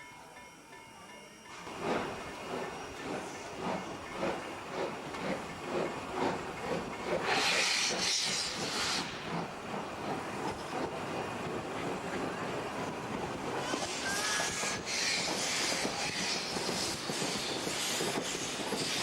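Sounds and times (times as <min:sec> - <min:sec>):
steam locomotive exhaust beats: 0:01.5 - 0:19.0
steam hissing: 0:01.6 - 0:19.0.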